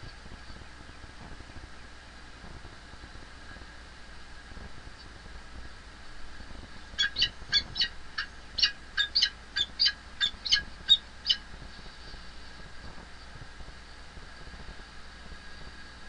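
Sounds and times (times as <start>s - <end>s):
falcon calling harsh notes: 7.0s - 11.4s.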